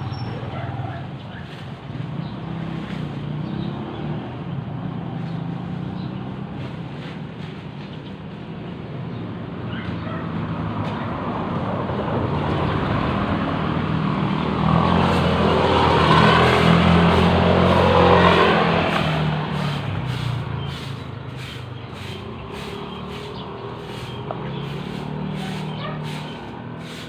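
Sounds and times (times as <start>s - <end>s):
vehicle driving past: 10.3s - 27.0s.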